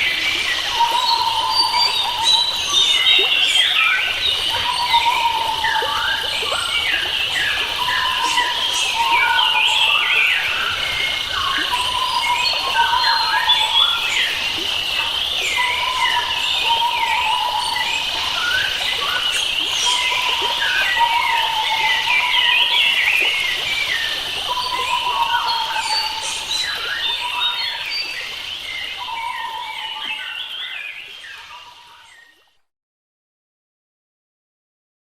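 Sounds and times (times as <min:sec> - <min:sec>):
birds chirping: 0:00.0 - 0:32.3.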